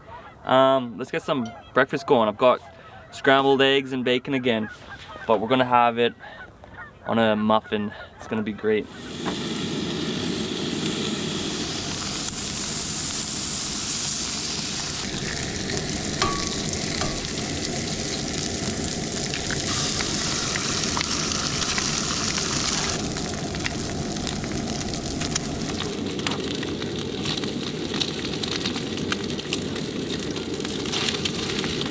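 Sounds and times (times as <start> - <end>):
bacon and eggs sizzling: 8.8 - 31.9.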